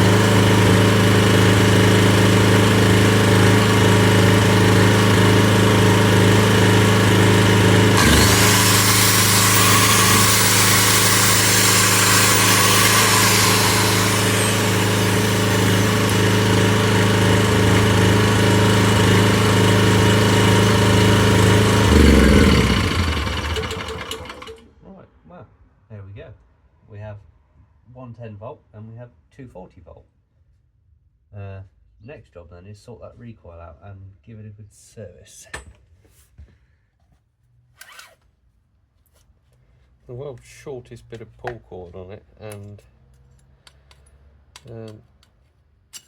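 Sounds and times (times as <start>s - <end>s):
generator engine running: 0.0s - 24.6s.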